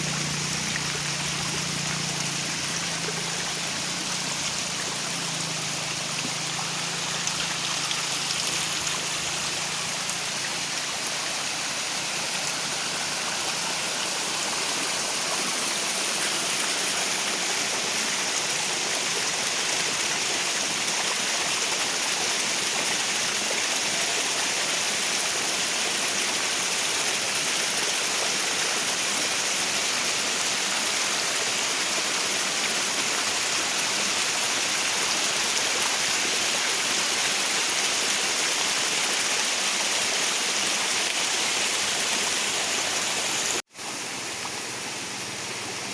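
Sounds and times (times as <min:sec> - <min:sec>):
heavy rain: 0:00.0 - 0:19.5
running rainwater: 0:00.0 - 0:45.9.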